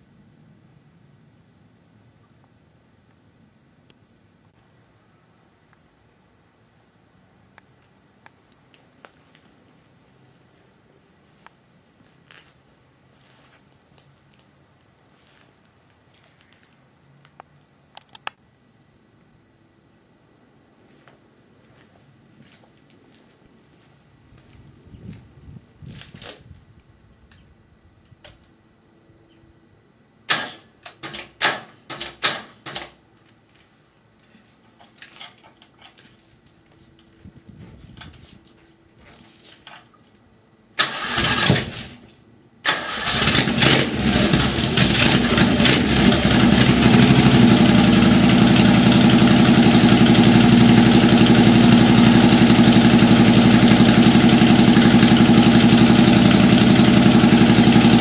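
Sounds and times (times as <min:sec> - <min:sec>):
engine cranking: 0:40.8 - 0:42.0, 0:42.7 - 0:58.0
engine running loudly: 0:42.9 - 0:58.0.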